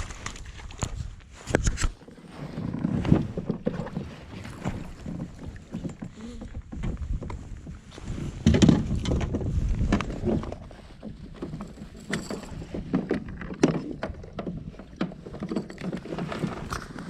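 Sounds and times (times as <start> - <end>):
wind rumble on microphone: 0.0 - 17.0
fish and gear knocking on kayak: 8.3 - 17.0.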